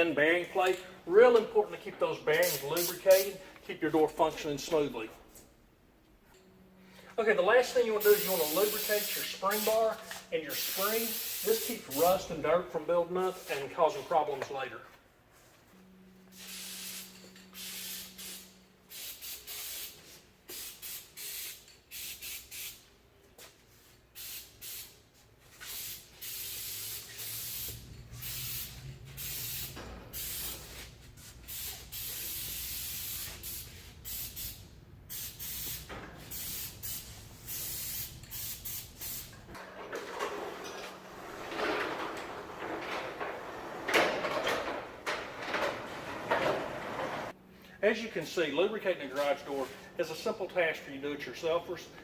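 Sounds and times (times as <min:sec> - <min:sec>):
aerosol spray hissing: 0:08.0 - 0:09.8, 0:10.6 - 0:12.2, 0:25.6 - 0:30.8, 0:31.5 - 0:39.3.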